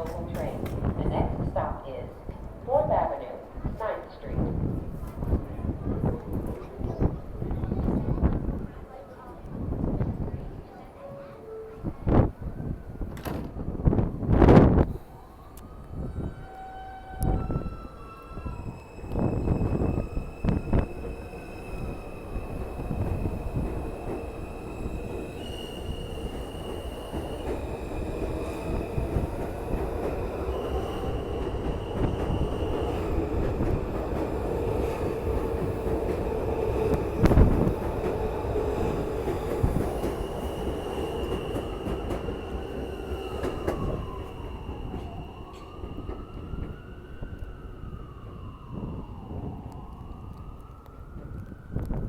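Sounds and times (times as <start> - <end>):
wheels rumbling on rail: 11.8 - 52.0.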